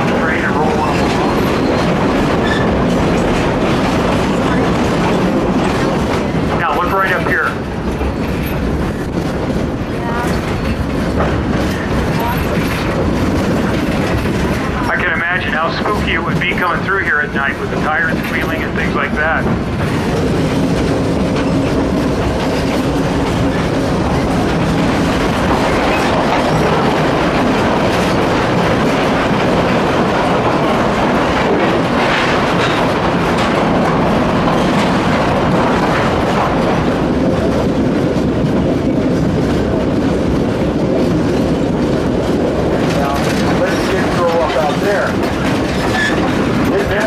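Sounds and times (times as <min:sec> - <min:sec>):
train wheels clattering on rails: 0:00.0 - 0:47.0.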